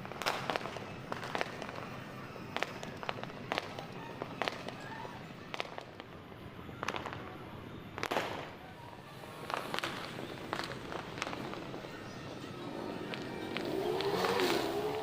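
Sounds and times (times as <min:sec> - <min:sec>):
distant fireworks bangs and pops: 0:00.0 - 0:15.0.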